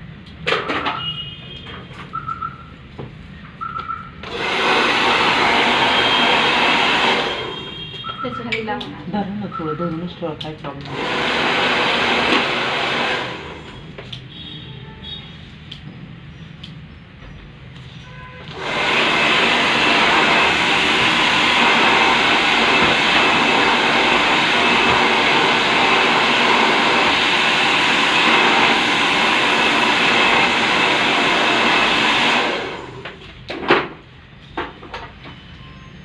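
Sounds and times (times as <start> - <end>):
hair dryer running: 4.2 - 7.8, 10.8 - 14.0, 18.4 - 33.3.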